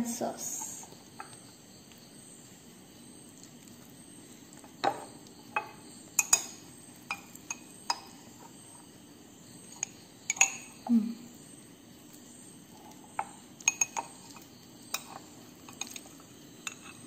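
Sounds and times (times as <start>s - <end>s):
spoon clinking against glass: 5.6s - 8.1s, 9.7s - 10.8s, 13.7s - 16.0s.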